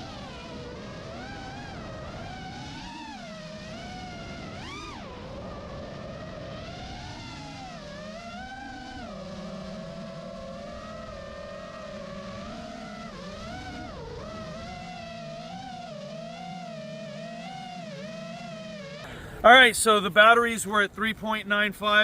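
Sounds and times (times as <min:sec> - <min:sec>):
low steady hum: 0:00.0 - 0:22.0
rc aircraft propeller whine: 0:00.0 - 0:22.0.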